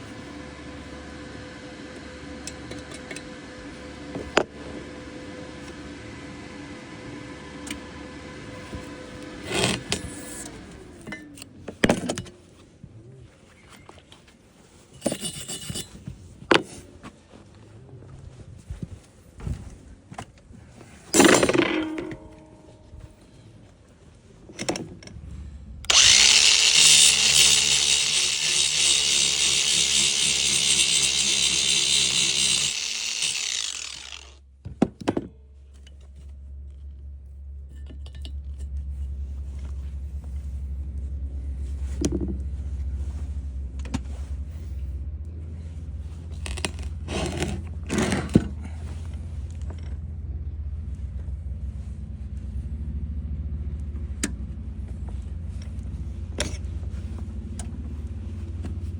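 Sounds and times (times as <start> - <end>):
low hum: 21.1 - 24.4, 25.0 - 34.4
electric power tool running: 25.9 - 34.4.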